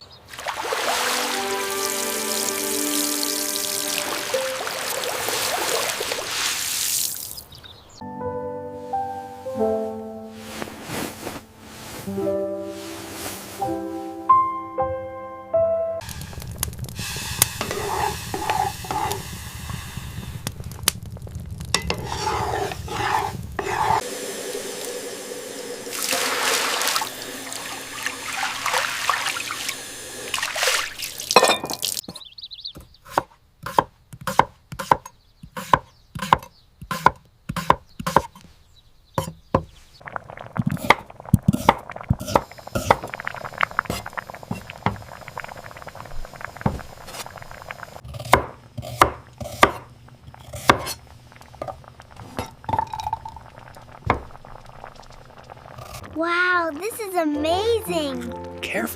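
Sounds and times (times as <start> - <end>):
liquid pouring: 0.4 - 7.4, 16.0 - 32.0, 40.0 - 48.0, 49.9 - 56.2
stirring: 17.4 - 19.2, 21.8 - 24.1
knife chopping on a board: 32.8 - 38.4, 48.1 - 49.8.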